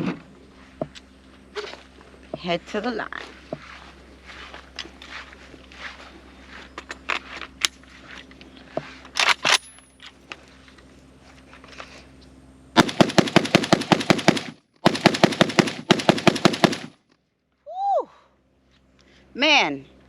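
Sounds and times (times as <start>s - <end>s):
rifle firing rapid shots: 12.8s - 16.9s.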